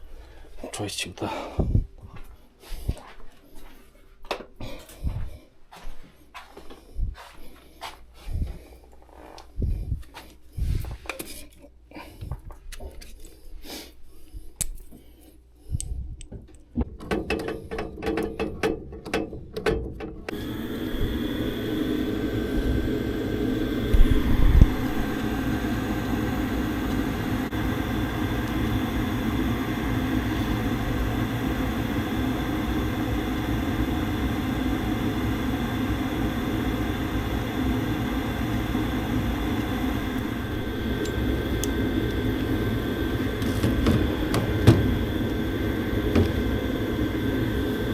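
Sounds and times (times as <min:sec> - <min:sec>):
furnace fan running: 0:15.8 - 0:47.9
thump: 0:43.5 - 0:45.1.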